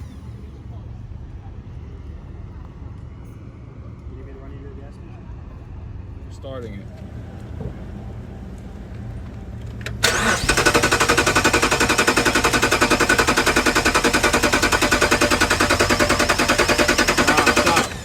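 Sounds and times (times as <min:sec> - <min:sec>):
car starter motor cranking: 0:00.0 - 0:00.6, 0:09.8 - 0:18.0.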